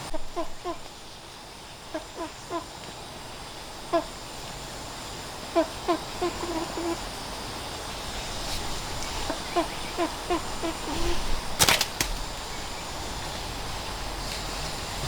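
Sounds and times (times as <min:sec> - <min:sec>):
sharp cracks: 0:11.4 - 0:12.6.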